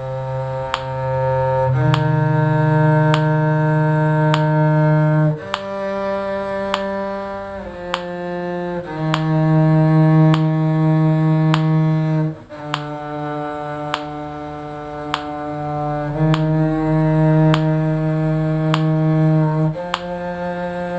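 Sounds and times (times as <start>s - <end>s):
bowed string long notes: 0.0s - 20.9s
metronome click: 0.6s - 1.1s, 1.8s - 2.2s, 3.0s - 3.4s, 4.2s - 4.6s, 5.4s - 5.8s, 6.6s - 7.0s, 7.8s - 8.2s, 9.0s - 9.4s, 10.2s - 10.6s, 11.4s - 11.8s, 12.6s - 13.2s, 13.8s - 14.2s, 15.0s - 15.5s, 16.2s - 16.6s, 17.4s - 17.8s, 18.6s - 19.1s, 19.8s - 20.2s.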